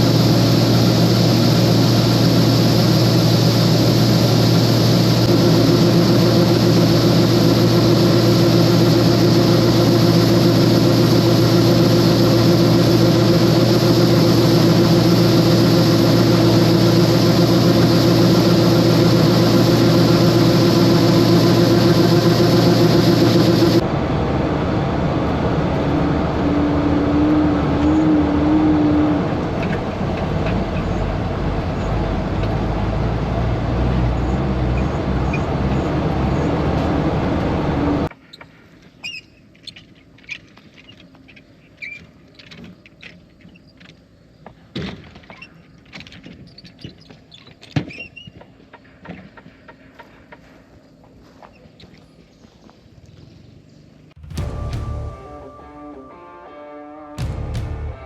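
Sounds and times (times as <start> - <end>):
wavering tone: 0.0 - 23.8, 54.3 - 58.0
combine harvester droning: 0.0 - 38.1, 54.1 - 58.0
steady machine whine: 0.0 - 38.1, 54.1 - 58.0.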